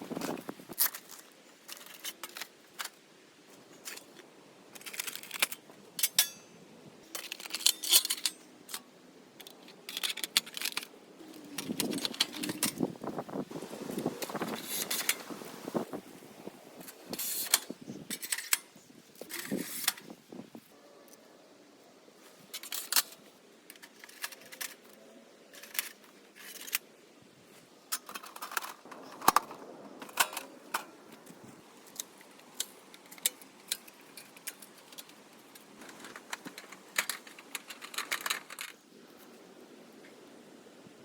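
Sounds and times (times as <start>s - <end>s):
thin metal parts clinking: 7.1s - 8.8s, 9.4s - 10.9s, 17.1s - 20.1s, 22.5s - 26.8s.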